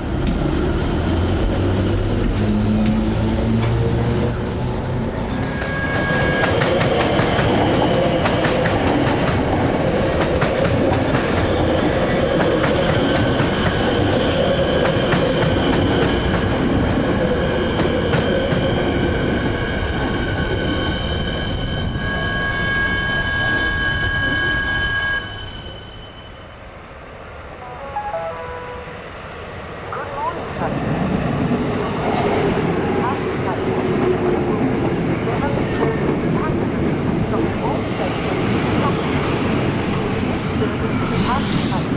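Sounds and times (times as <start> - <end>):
train running on rails: 0.0 - 41.9
high wheel squeal: 4.3 - 6.8, 19.3 - 26.7.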